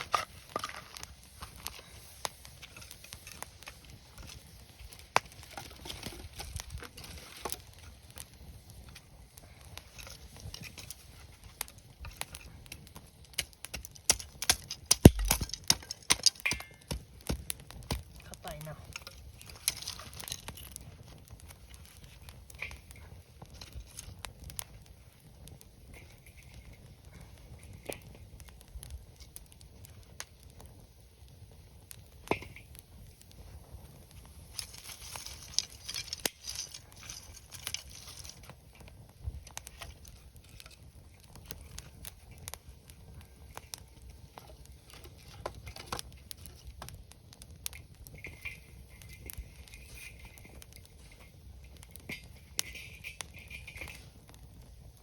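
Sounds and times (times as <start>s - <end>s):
campfire crackling: 0.0s - 55.0s
fire hissing: 0.0s - 55.0s.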